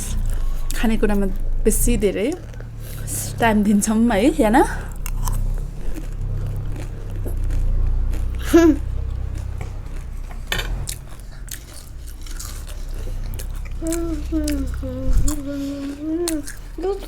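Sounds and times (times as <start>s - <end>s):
steady low hum: 0.0s - 17.0s
snack crunching and chewing: 4.9s - 17.0s.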